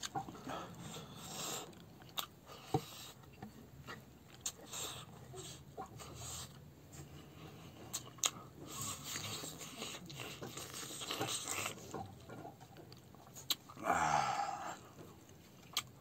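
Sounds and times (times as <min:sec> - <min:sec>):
person chewing rice: 0:00.0 - 0:16.0
short vocal sound: 0:13.8 - 0:14.9.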